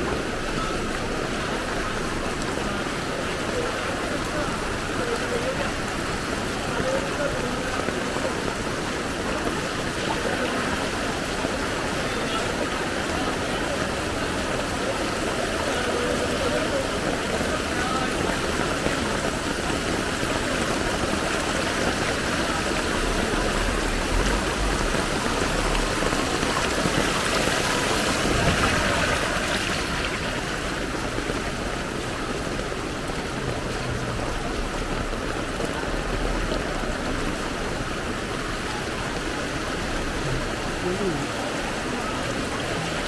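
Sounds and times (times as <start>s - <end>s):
floodwater rushing: 0.0s - 43.0s.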